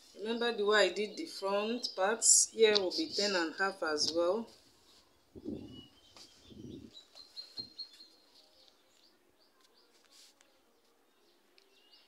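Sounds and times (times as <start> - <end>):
faint bird chirps: 4.8 - 9.9
paper and fabric rustling: 9.6 - 11.0.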